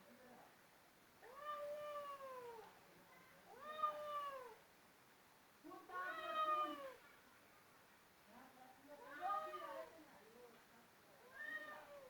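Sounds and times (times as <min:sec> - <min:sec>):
cat meowing: 0:01.2 - 0:02.6, 0:11.3 - 0:12.0.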